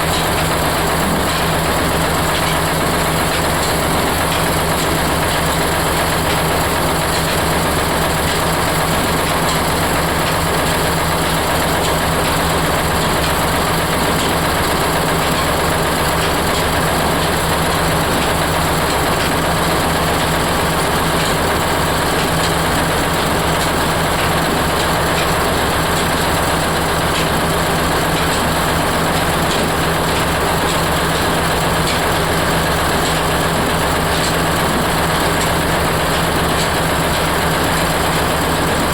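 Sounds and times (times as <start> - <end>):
oil press machine droning: 0.0 - 38.9.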